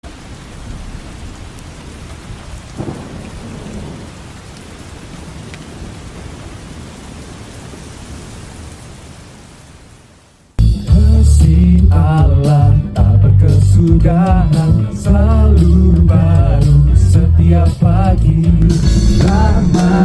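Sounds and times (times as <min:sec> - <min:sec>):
heavy rain falling: 0:00.0 - 0:10.6, 0:14.0 - 0:20.0
deep rumble: 0:10.8 - 0:20.0.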